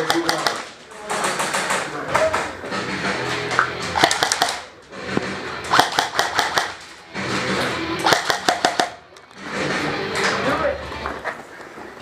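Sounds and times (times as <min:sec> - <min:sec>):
airsoft guns firing rapid shots: 0:00.0 - 0:01.9, 0:04.0 - 0:04.7, 0:05.7 - 0:06.8, 0:08.0 - 0:09.0.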